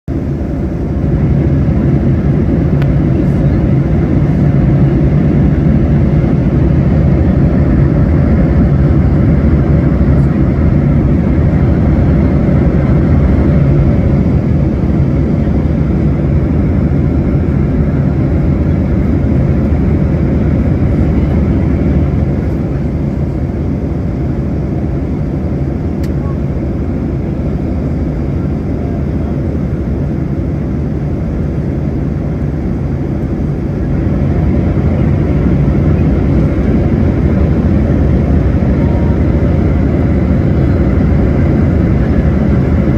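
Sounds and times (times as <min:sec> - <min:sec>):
jet engines rumbling in flight: 0:00.1 - 0:42.9.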